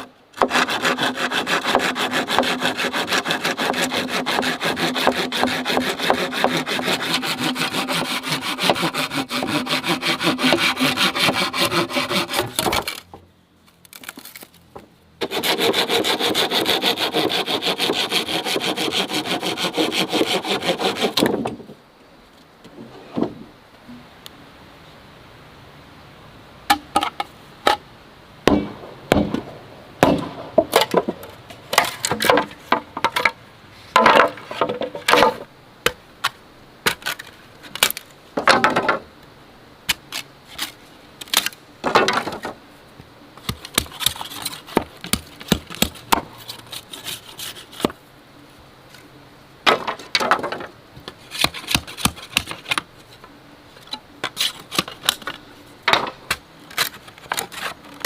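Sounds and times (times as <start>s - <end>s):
bamboo being chopped: 28.5s - 31.2s, 43.4s - 46.3s, 51.4s - 52.8s.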